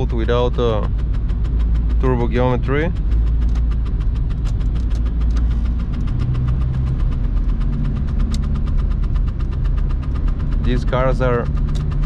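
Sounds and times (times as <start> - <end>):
diesel engine drone from cabin: 0.0 - 12.0.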